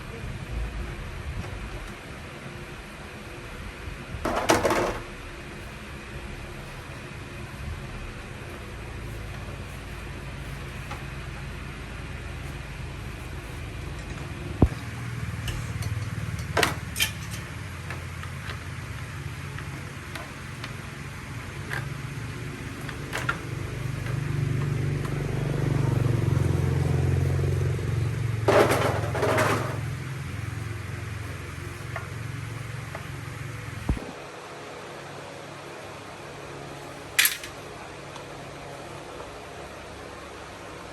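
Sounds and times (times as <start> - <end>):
low mechanical hum: 0.0 - 40.9
clattering scrapes: 28.5 - 30.0.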